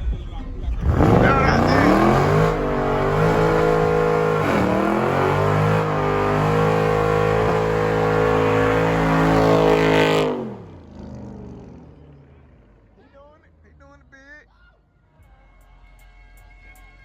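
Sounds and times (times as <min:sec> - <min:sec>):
car engine revving at high rpm: 0:00.8 - 0:12.7.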